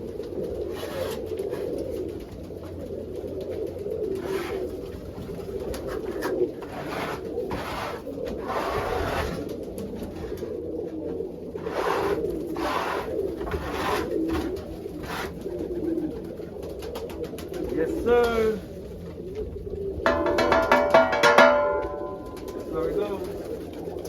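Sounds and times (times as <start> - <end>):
pigeons cooing: 0.0 - 24.0
scraper rasping over floor: 0.7 - 1.2, 4.2 - 4.7, 6.6 - 9.5, 11.6 - 14.2, 15.0 - 15.4.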